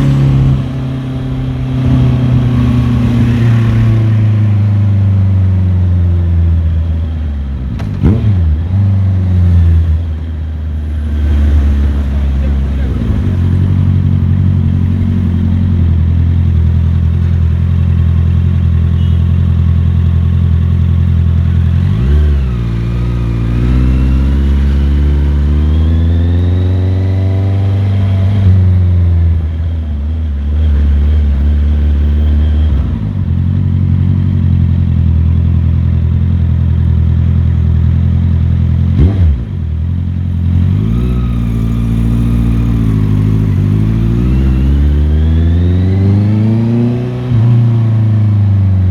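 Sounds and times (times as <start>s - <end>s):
motorcycle engine accelerating: 0.0s - 7.0s, 11.0s - 29.7s, 30.4s - 48.9s
motorcycle engine rev blip: 19.0s - 19.4s.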